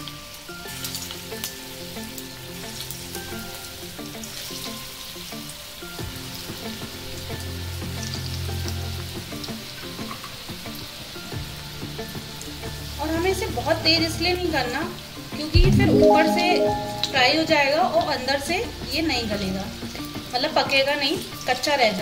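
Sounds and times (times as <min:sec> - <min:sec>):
balls frying in hot oil: 0:00.0 - 0:15.5, 0:18.0 - 0:22.0.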